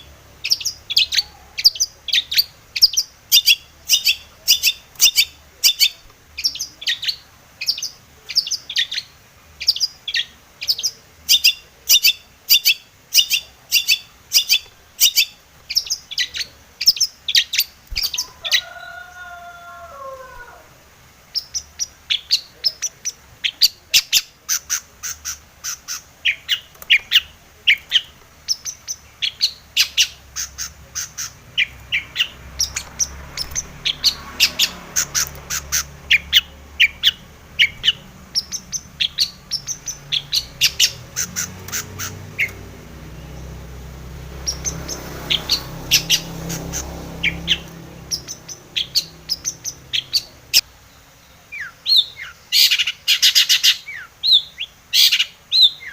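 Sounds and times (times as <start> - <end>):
bird chattering song: 0.0 - 19.2, 21.2 - 55.9
faint low rumble: 26.7 - 50.6.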